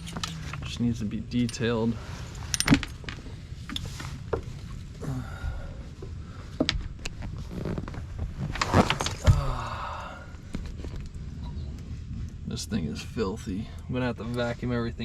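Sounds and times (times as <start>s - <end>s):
low thuds: 6.6s - 12.4s.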